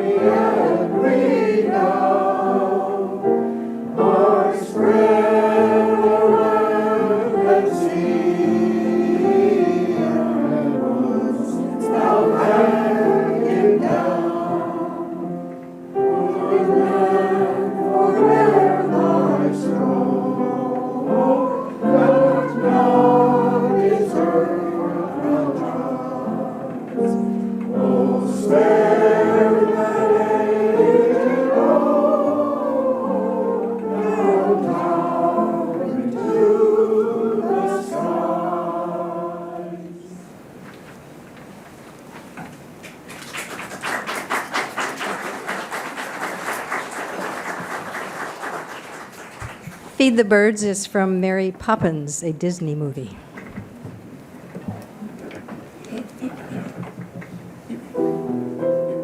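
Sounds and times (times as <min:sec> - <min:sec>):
choir singing: 0:00.0 - 0:40.4.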